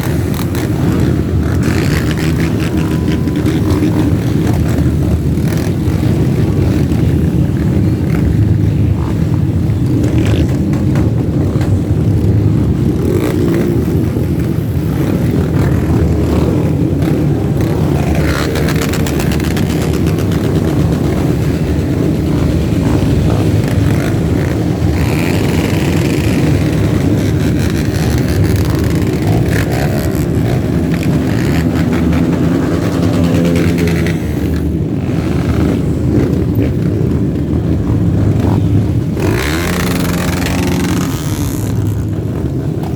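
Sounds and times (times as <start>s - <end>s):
motorcycle engines droning: 0.0s - 42.9s
motorcycle revving: 0.0s - 42.9s.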